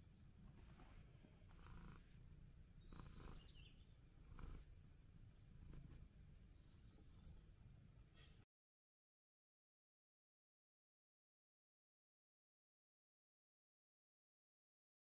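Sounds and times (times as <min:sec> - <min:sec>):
faint outdoor rumble: 0:00.0 - 0:08.4.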